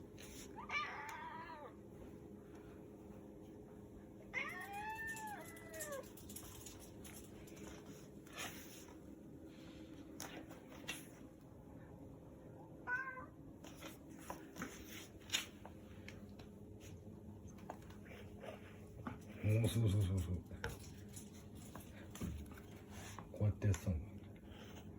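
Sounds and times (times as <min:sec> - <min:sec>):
cat meowing: 0:00.6 - 0:01.8, 0:04.3 - 0:06.0, 0:12.8 - 0:13.4.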